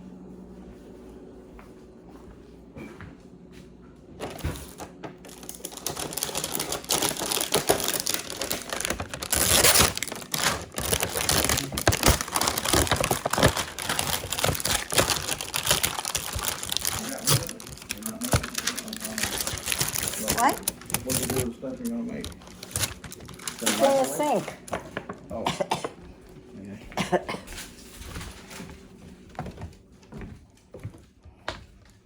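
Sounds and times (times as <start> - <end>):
crinkling and rustling: 4.2 - 25.4, 27.3 - 31.0.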